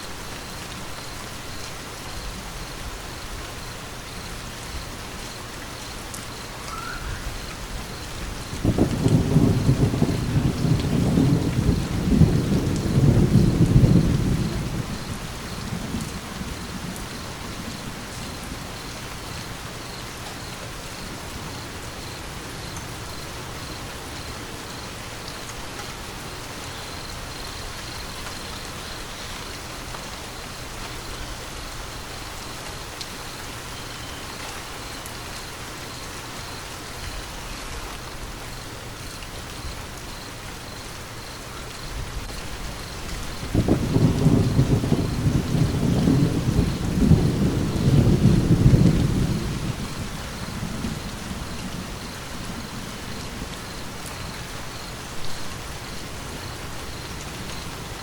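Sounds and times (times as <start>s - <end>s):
steady rain: 0.0s - 58.0s
low rumble of thunder: 6.4s - 25.3s, 39.6s - 58.0s.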